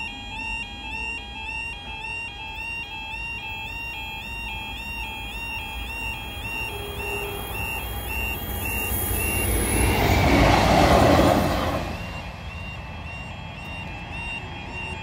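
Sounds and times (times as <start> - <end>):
crossing alarm warbling: 0.0 - 15.0
diesel train passing: 5.0 - 15.0.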